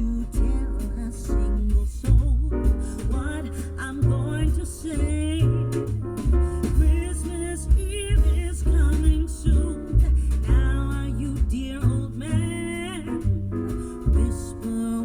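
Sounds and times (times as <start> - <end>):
song through car audio system: 0.0 - 5.6
pulsing bass line: 0.0 - 15.0.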